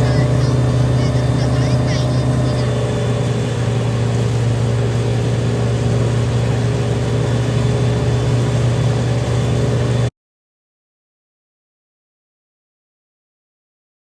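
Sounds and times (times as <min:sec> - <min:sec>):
speedboat engine running: 0:00.0 - 0:10.1.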